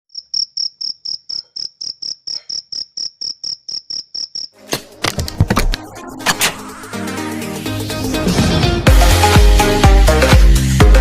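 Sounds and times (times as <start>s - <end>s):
cricket chirping: 0.1s - 4.6s
loud electronic music: 5.6s - 11.0s.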